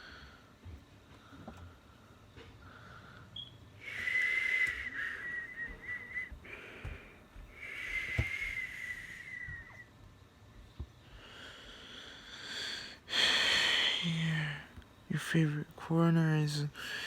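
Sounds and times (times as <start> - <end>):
breathy whistled notes: 3.4 - 6.4, 7.5 - 9.9.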